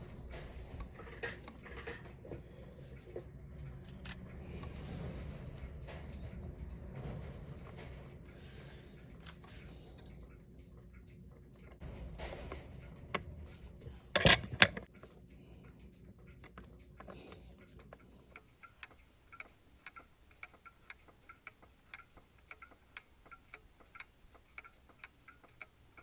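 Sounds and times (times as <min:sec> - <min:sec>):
mechanical ticking: 0:17.7 - 0:26.0
sharp metallic clicks: 0:17.8 - 0:26.0.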